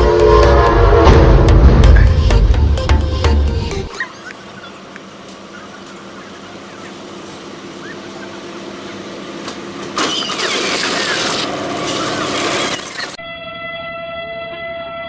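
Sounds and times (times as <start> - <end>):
loud rushing noise: 0.0 - 3.6
train rumble: 0.0 - 10.2.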